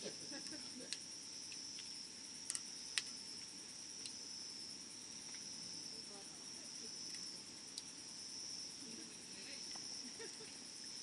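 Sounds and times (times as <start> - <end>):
crickets trilling: 0.0 - 11.0
campfire crackling and popping: 0.3 - 4.5, 6.8 - 11.0.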